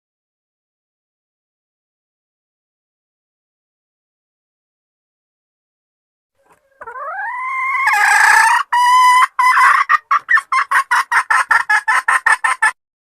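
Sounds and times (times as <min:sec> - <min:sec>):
hen clucking: 0:06.4 - 0:12.8
junglefowl hen calling: 0:06.4 - 0:12.8.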